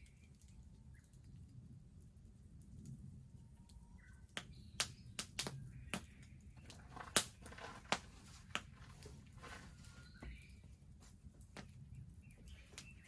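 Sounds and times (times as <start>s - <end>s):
wood bonfire crackling: 0.0s - 13.0s
bird chirps: 9.5s - 10.8s, 11.8s - 13.0s.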